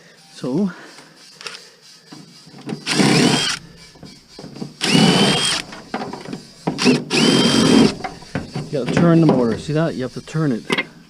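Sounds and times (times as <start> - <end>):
power drill whining: 2.5 - 10.8.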